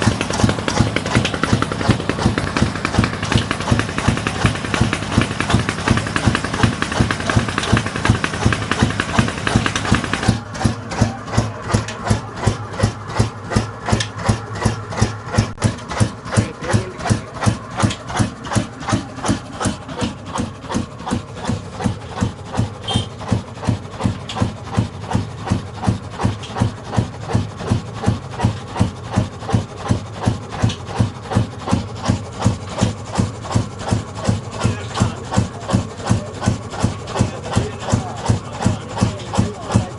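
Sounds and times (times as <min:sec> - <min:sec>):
diesel engine firing slowly: 0:00.0 - 0:39.9.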